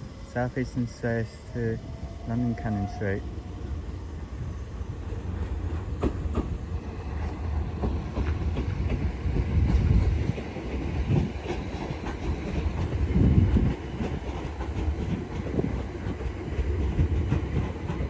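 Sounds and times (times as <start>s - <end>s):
train low rumble: 0.0s - 18.0s
wheels clacking over rail joints: 5.0s - 18.0s.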